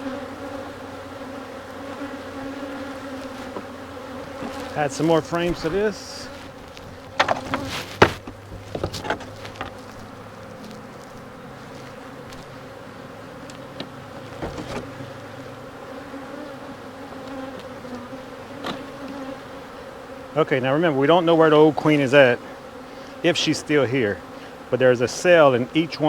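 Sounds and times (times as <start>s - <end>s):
bees buzzing: 0.0s - 26.0s
short knocks: 6.8s - 9.8s.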